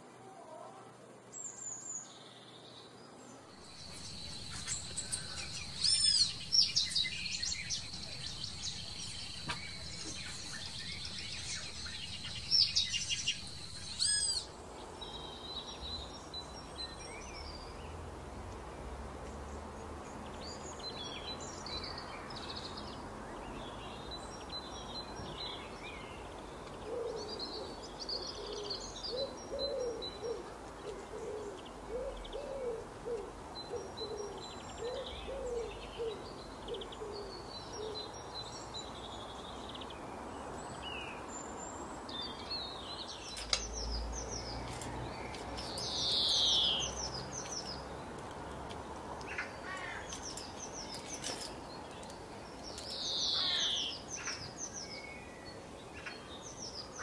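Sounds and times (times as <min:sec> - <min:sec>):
soft high bird chirps: 0:03.7 - 0:15.9
loud whistled bird calls: 0:03.8 - 0:14.5.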